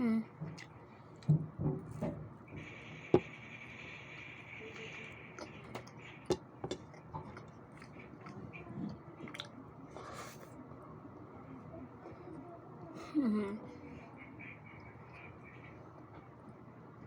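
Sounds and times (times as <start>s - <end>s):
person chewing food: 0.5s - 1.3s, 5.4s - 10.5s.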